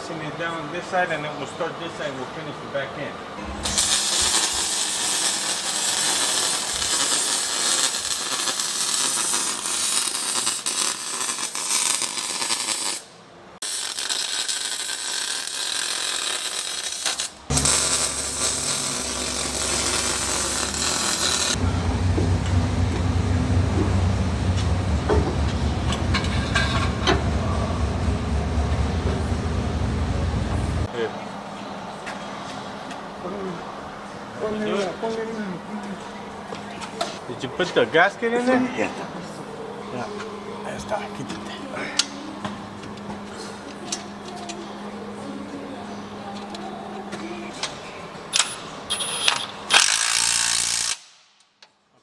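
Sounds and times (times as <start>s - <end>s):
welding crackling sizzle: 3.6s - 22.1s
low steady hum: 17.5s - 30.9s.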